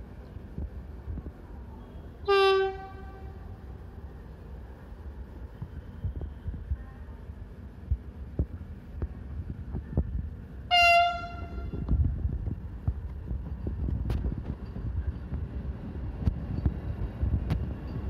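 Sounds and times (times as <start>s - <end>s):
train rumbling: 0.0s - 18.0s
train horn blast: 2.2s - 3.4s, 10.7s - 11.9s
wheels clacking on track: 7.9s - 18.0s.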